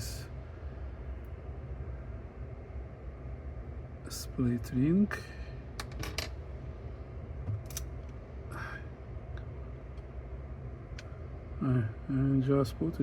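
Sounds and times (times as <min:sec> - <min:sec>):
metallic clicks of small parts: 0:07.6 - 0:07.9.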